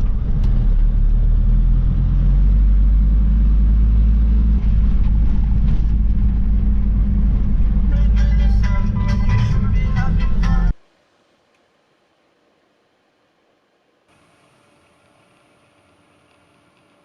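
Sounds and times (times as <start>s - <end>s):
van engine and road noise: 0.0s - 10.8s
music: 7.9s - 10.8s.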